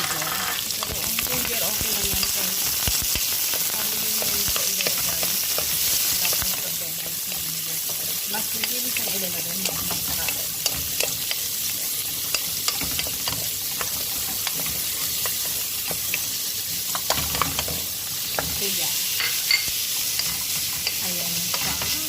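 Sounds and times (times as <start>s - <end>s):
utensil scraping a pan: 0.0s - 0.9s
onion sizzling in oil: 0.0s - 22.0s.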